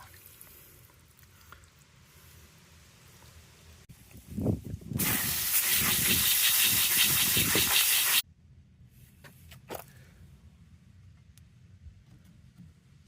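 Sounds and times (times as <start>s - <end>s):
water rushing with hiss: 5.0s - 8.2s.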